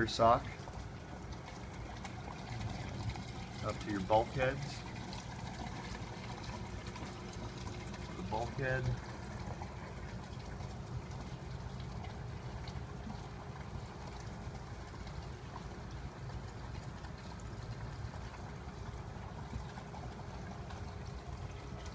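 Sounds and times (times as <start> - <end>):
low steady hum: 0.0 - 21.9
water trickling into a sump: 0.0 - 21.9.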